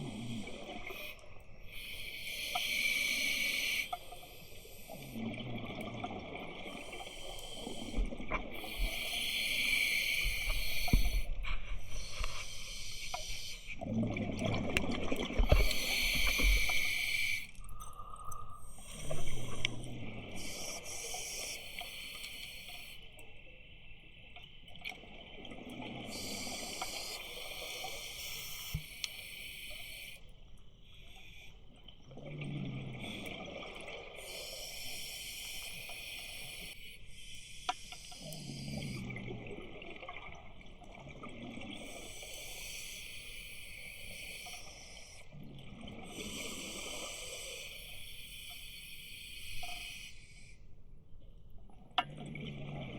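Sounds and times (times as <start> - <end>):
regulator hiss on inhale: 0.0 - 5.2, 6.7 - 13.8, 15.5 - 17.5, 20.4 - 23.2, 26.1 - 30.3, 34.2 - 39.0, 41.9 - 45.3, 46.1 - 50.7
exhaled bubbles burbling: 13.8 - 16.9, 52.0 - 52.9.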